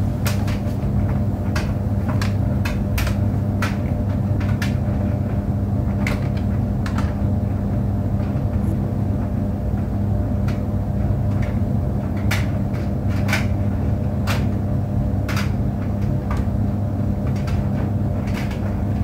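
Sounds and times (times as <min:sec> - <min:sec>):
tumble dryer humming: 0:00.0 - 0:19.0
sharp clicks and knocks: 0:00.2 - 0:07.3.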